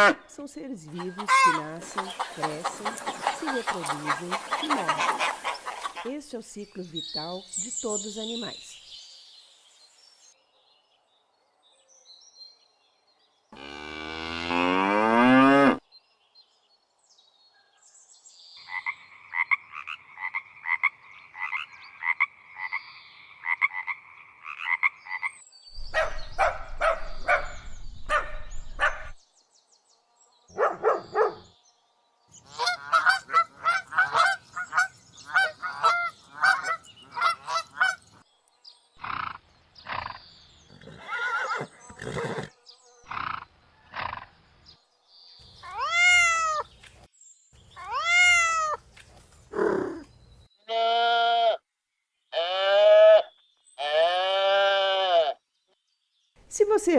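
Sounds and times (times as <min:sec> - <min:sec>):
farm animal calls: 0:00.0 - 0:06.4, 0:32.4 - 0:38.2, 0:45.6 - 0:47.1, 0:47.8 - 0:51.6.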